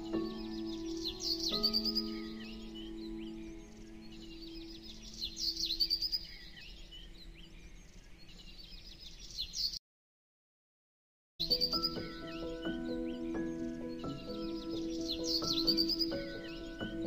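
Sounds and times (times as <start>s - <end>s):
background music: 0.0s - 5.7s, 11.4s - 17.0s
birds chirping: 0.0s - 9.8s, 11.4s - 17.0s.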